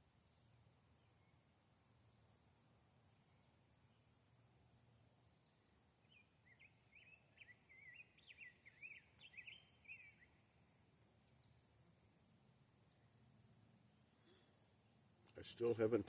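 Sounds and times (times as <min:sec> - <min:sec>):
quiet outdoor hiss: 0:00.0 - 0:16.0
songbird chirping and warbling: 0:00.2 - 0:12.0, 0:14.2 - 0:16.0
faint sharp clicks: 0:08.7 - 0:09.4, 0:10.9 - 0:11.2.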